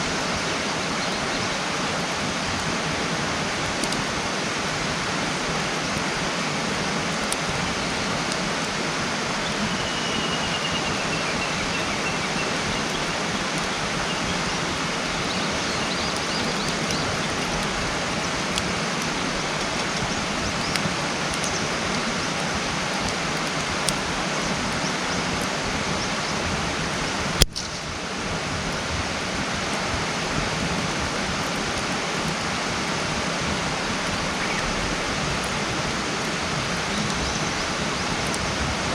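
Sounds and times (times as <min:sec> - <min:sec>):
campfire crackling: 0:00.0 - 0:38.9
steady rushing hiss: 0:00.0 - 0:38.9
faint thin whistle: 0:09.6 - 0:12.5.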